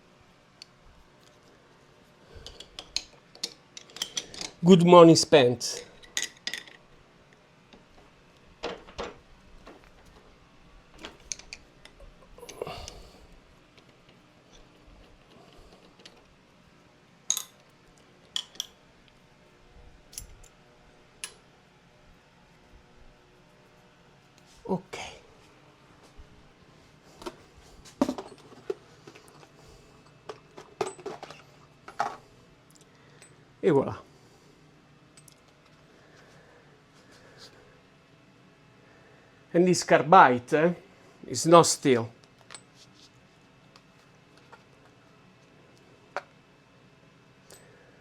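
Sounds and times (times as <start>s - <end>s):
metal tools knocking and clinking: 2.4s - 4.6s, 17.3s - 17.6s, 30.3s - 32.2s.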